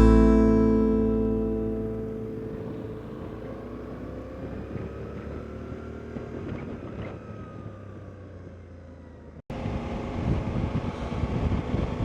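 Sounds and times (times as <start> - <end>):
wind noise: 9.6 - 12.0.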